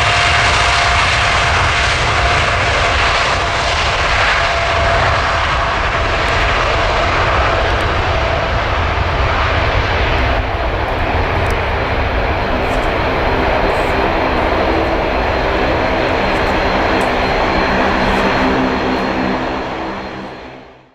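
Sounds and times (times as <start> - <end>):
jet engines roaring: 0.0 - 20.9.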